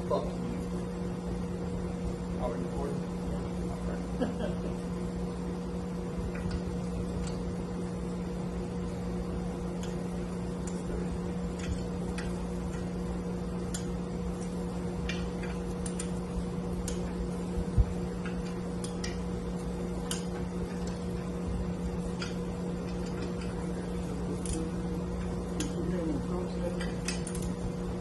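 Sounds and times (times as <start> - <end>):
mechanical hum: 0.0 - 28.0.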